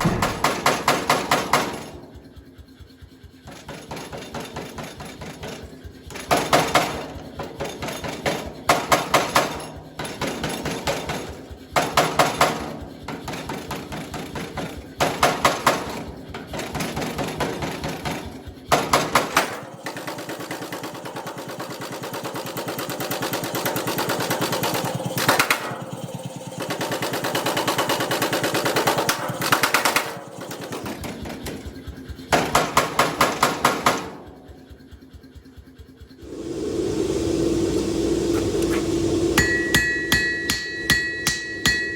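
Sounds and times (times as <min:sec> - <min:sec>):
hammer blows on steel: 0:00.0 - 0:02.0, 0:38.3 - 0:41.9.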